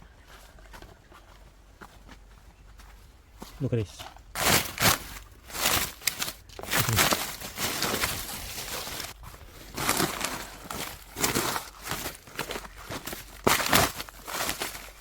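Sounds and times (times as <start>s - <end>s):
leaf litter rustling and crunching: 4.3s - 15.0s.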